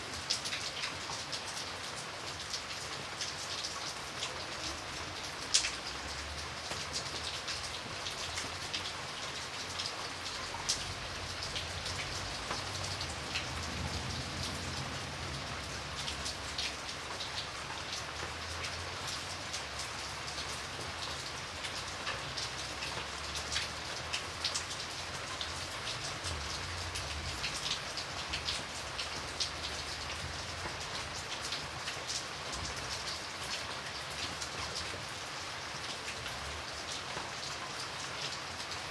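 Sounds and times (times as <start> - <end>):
raindrops ticking on a window: 0.2 - 38.9.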